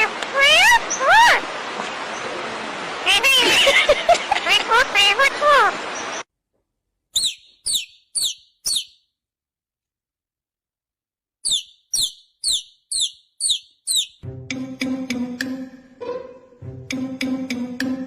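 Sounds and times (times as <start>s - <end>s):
bird chirping: 7.1s - 9.2s, 11.4s - 14.2s.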